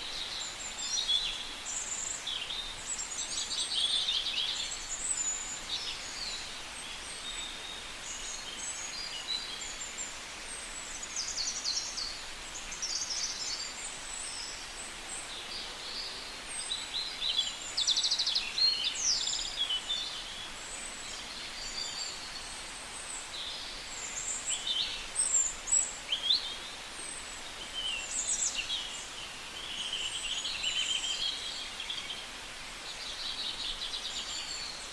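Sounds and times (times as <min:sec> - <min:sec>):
outdoor hiss: 0:00.0 - 0:34.9
birds chirping and trilling: 0:27.7 - 0:32.2.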